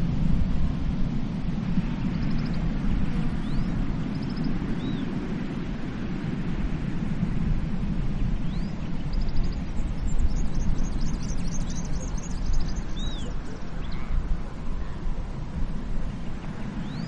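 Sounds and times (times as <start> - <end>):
waves breaking on beach: 0.0 - 17.0
birds chirping: 1.9 - 5.2, 8.2 - 17.0.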